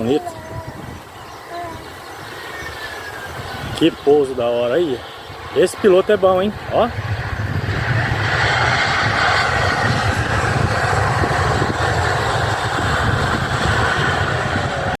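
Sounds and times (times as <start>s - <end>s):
jet engine rumble and hiss: 0.0s - 15.0s.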